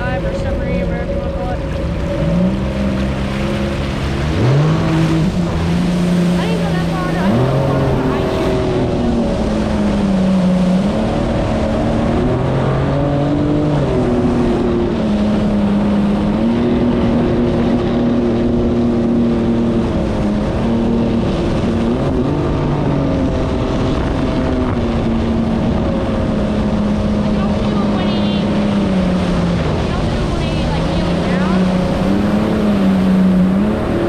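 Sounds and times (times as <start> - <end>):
personal watercraft engine: 0.0 - 34.0
rush of noise: 0.0 - 34.0.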